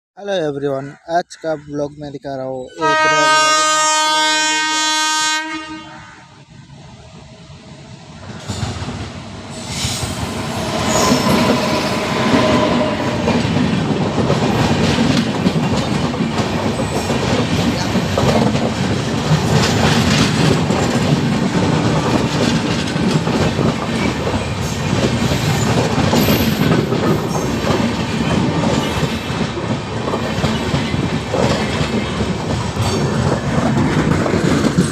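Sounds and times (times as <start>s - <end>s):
train wheels rumbling on track: 6.4s - 34.9s.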